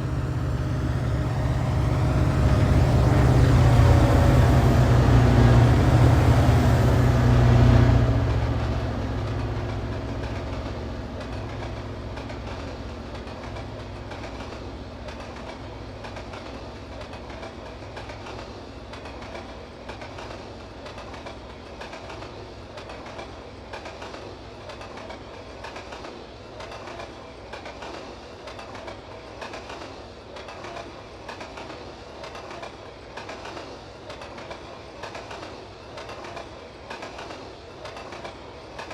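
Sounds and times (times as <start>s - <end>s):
freight train rolling past: 0.0s - 38.9s
wheels clacking over rail joints: 9.2s - 38.9s.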